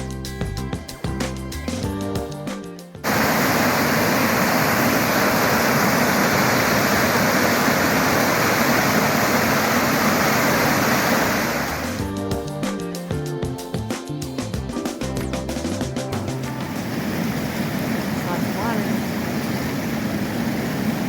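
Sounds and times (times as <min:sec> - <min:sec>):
background music: 0:00.0 - 0:03.1, 0:11.6 - 0:17.2
water rushing: 0:03.0 - 0:12.1, 0:15.6 - 0:21.0.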